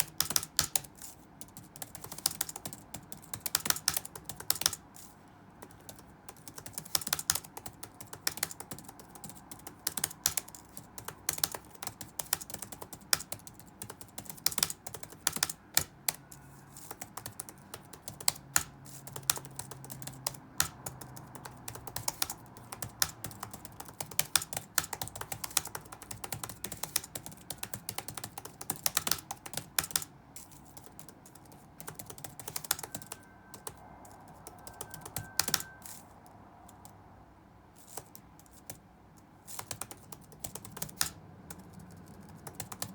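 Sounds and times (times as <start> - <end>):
keyboard keystroke clicks: 0.0 - 4.8, 30.8 - 36.0
faint room noise: 0.0 - 42.9.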